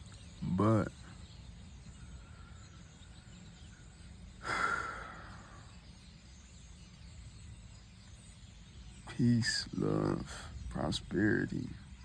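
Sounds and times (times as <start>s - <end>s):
outdoor night ambience: 0.0s - 12.0s
breathy exhale: 4.4s - 5.7s.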